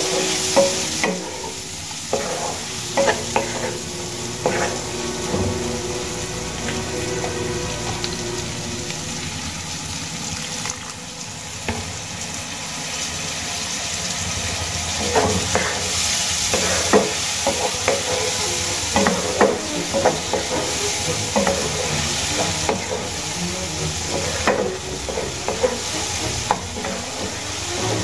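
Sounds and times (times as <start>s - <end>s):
spatula scraping pan: 0.0s - 8.0s, 15.0s - 28.0s
potatoes sizzling in oil: 0.0s - 28.0s.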